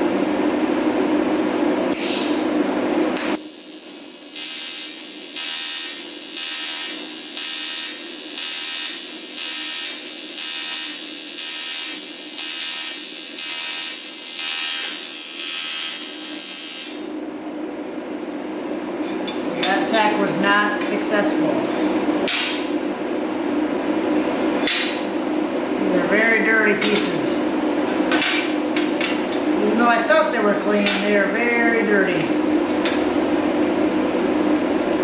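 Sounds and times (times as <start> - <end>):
welding arc buzzing: 1.9 - 17.2.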